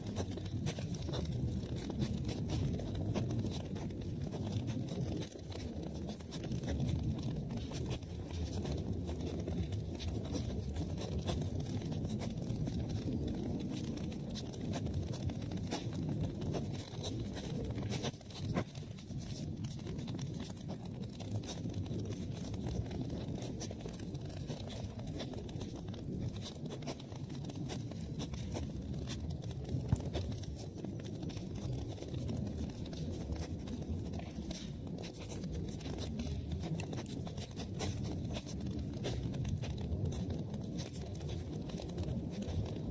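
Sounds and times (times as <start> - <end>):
fire crackles and pops: 0.0 - 42.9
low rumble of flames: 0.0 - 42.9.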